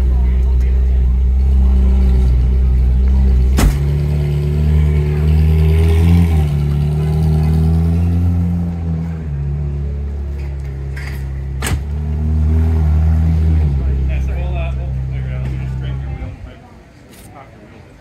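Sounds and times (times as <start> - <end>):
car engine idling: 0.0 - 12.1.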